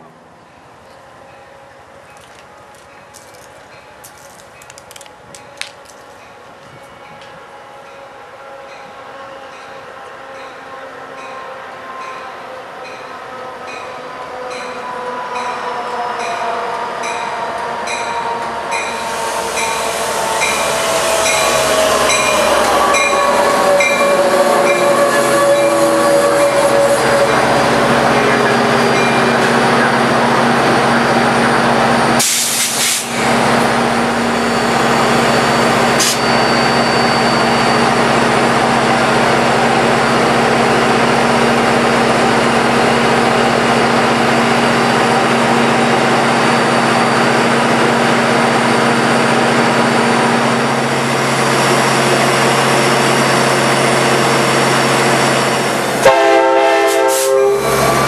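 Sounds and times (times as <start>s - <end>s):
diesel locomotive droning: 0.0s - 58.0s
train horn chord: 20.4s - 29.3s, 56.0s - 58.0s.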